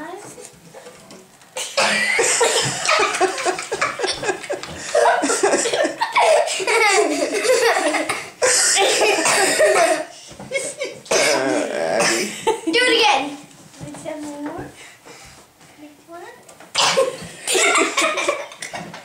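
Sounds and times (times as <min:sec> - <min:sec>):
people laughing heartily: 0:01.8 - 0:11.1, 0:17.1 - 0:18.9.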